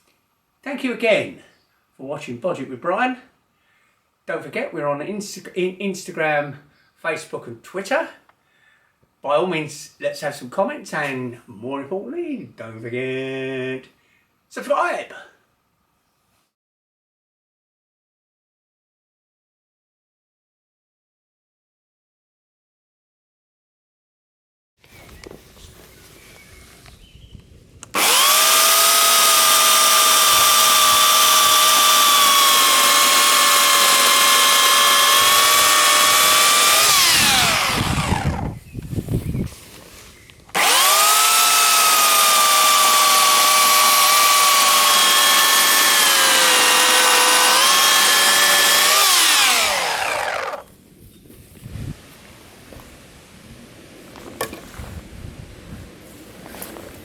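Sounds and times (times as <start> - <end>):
electric chainsaw running: 27.9 - 38.6, 40.5 - 50.7.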